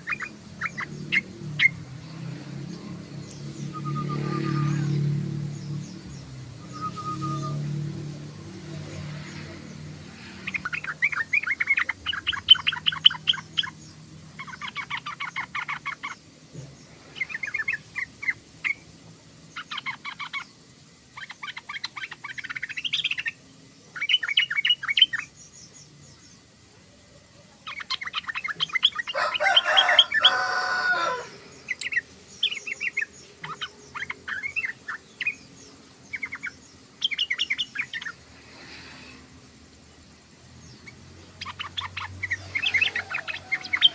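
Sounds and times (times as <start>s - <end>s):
bird chattering: 10.2s - 16.3s, 27.7s - 38.2s, 40.7s - 43.9s.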